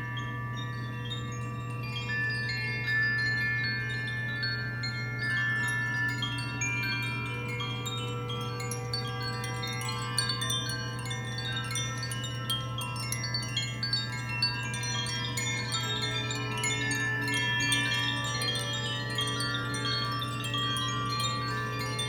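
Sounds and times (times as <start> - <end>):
chimes tinkling: 0.0 - 22.0.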